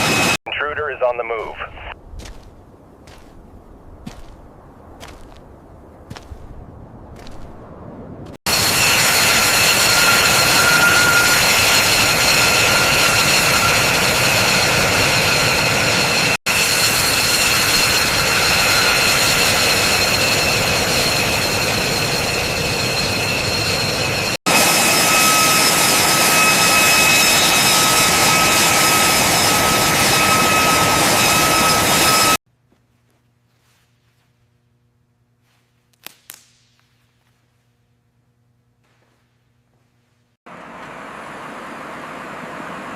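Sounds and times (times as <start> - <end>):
engine whining: 8.5 - 32.4.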